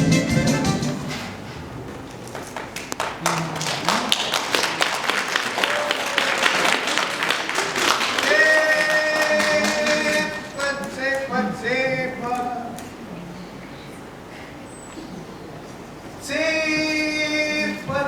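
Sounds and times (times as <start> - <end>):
audience applauding: 2.0 - 11.4.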